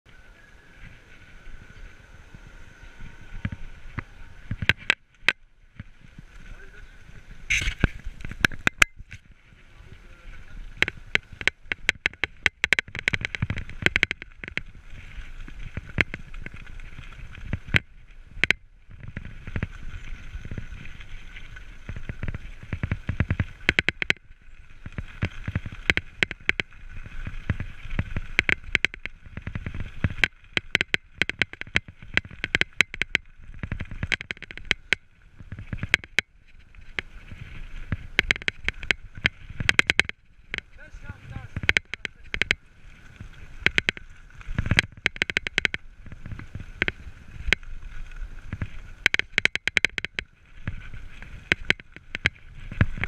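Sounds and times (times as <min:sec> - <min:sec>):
wind noise: 0:00.1 - 0:53.0
bike rattles and knocks: 0:03.4 - 0:06.6, 0:07.5 - 0:09.3, 0:10.7 - 0:42.6, 0:43.2 - 0:53.0.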